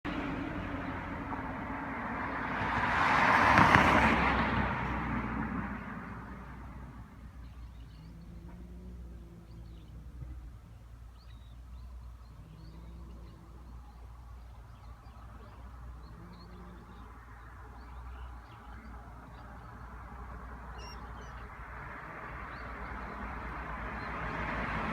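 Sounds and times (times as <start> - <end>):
vehicle passing by: 0.1 - 24.9
quiet steady rumble: 6.0 - 23.9.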